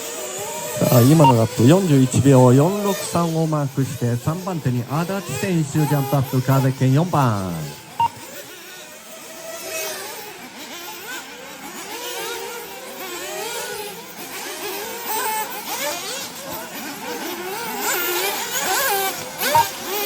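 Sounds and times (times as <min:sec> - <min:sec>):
small engines revving: 0:00.0 - 0:20.0
short beep: 0:00.8 - 0:01.6, 0:08.0 - 0:08.2.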